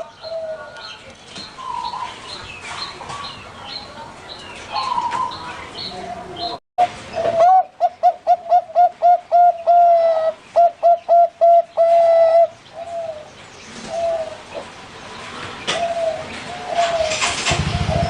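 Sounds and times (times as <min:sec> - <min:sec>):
dove cooing song: 0:00.0 - 0:01.0, 0:01.6 - 0:02.4, 0:04.7 - 0:14.7, 0:15.6 - 0:18.0.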